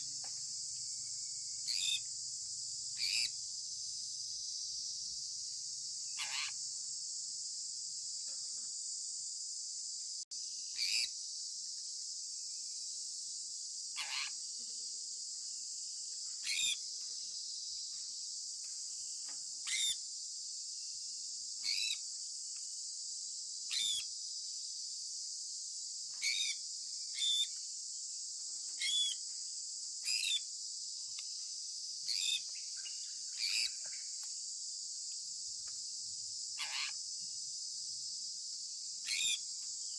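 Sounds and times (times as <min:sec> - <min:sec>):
high insect trill: 0:00.0 - 0:39.9
parrot chirping calls: 0:06.2 - 0:06.6, 0:36.6 - 0:37.0, 0:39.1 - 0:39.4.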